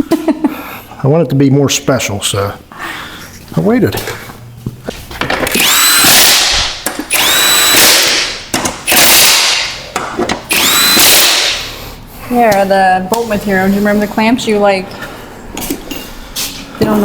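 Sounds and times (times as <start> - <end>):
power driver motor whine: 5.4 - 9.7, 10.5 - 11.6.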